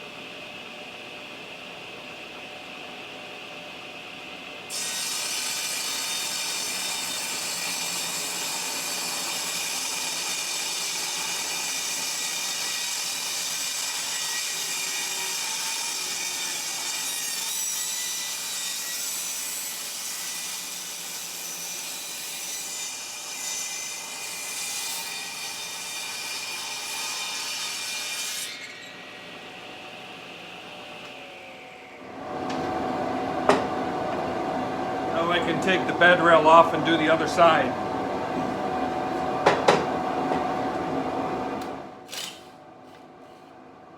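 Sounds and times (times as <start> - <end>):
power saw cutting board: 4.7 - 29.1, 42.1 - 43.4.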